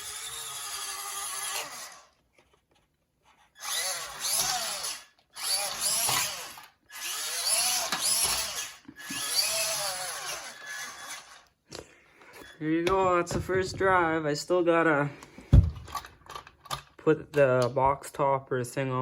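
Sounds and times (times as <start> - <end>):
small electric motor whirring: 0.0 - 2.1, 3.5 - 11.5.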